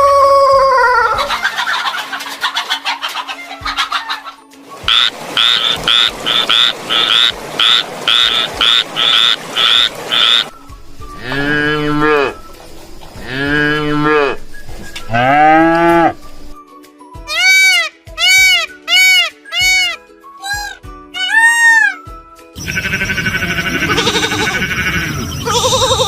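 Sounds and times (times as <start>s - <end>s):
cow mooing: 11.2s - 12.4s, 13.2s - 14.4s, 15.1s - 16.2s.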